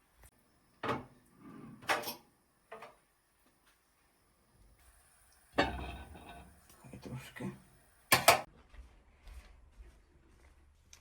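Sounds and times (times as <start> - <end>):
kitchen items knocking and clattering: 0.8 - 1.2, 5.6 - 6.6, 8.1 - 8.5.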